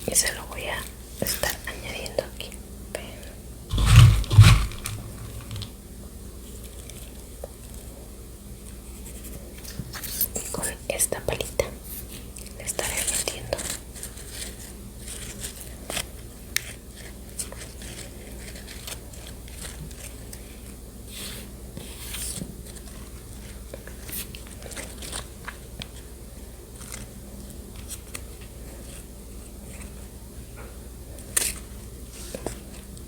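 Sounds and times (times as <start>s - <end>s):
spoon scraping a container: 3.7s - 5.7s.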